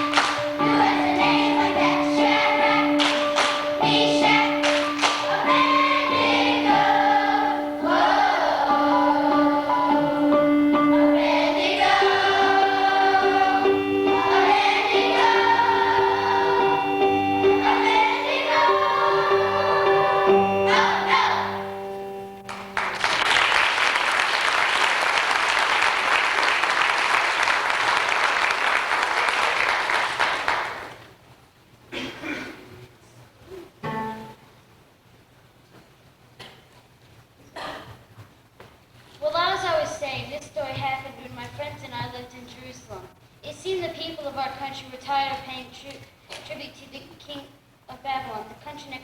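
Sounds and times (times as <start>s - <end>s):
choir singing with instruments: 0.0s - 22.9s
audience applause: 22.5s - 31.1s.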